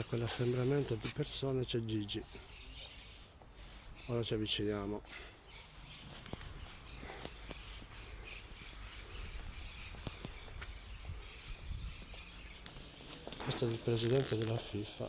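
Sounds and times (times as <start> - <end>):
faint outdoor background noise: 0.0 - 15.0
footsteps: 12.0 - 14.8.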